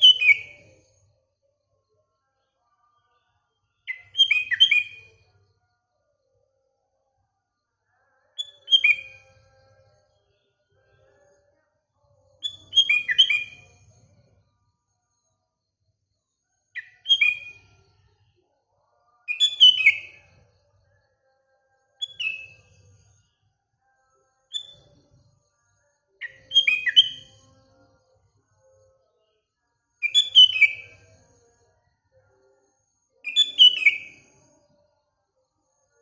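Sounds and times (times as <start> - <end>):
bulbul singing: 0.0 - 0.7, 3.9 - 5.1, 8.4 - 9.8, 12.4 - 13.9, 16.8 - 17.7, 19.3 - 20.4, 22.0 - 22.6, 26.2 - 27.6, 30.0 - 31.1, 33.2 - 34.4.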